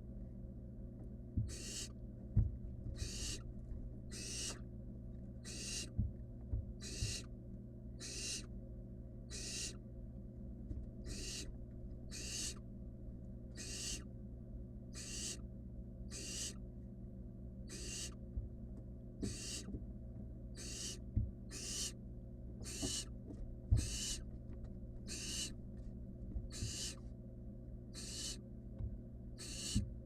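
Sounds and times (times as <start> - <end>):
owl chick hissing calls: 1.5 - 2.0, 3.0 - 3.5, 4.1 - 4.6, 5.4 - 6.0, 6.8 - 7.3, 8.0 - 8.5, 9.3 - 9.8, 11.0 - 11.5, 12.1 - 12.6, 13.5 - 14.1, 14.9 - 15.4, 16.1 - 16.6, 17.6 - 18.2, 19.2 - 19.7, 20.5 - 22.0, 22.6 - 23.1, 23.8 - 24.2, 25.1 - 25.6, 26.5 - 27.0, 27.9 - 28.4, 29.4 - 29.9.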